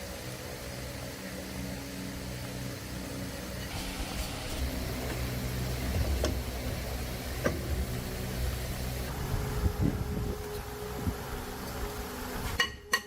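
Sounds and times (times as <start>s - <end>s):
small petrol engine running: 3.6s - 12.5s.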